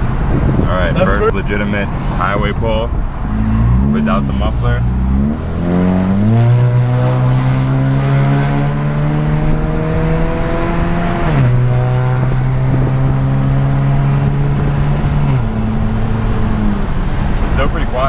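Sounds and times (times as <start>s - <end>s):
car engine accelerating: 3.2s - 17.6s.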